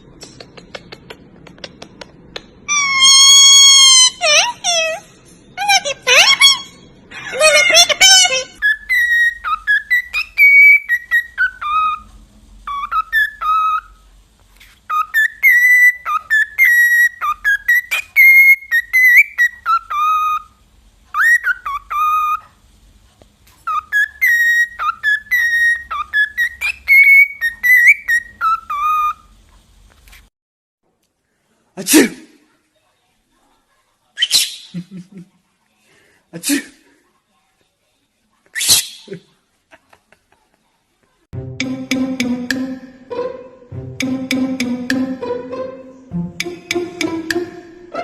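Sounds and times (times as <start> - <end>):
parrot whistling a tune: 2.7 - 5.0, 8.0 - 14.0, 14.9 - 22.5, 23.7 - 29.3.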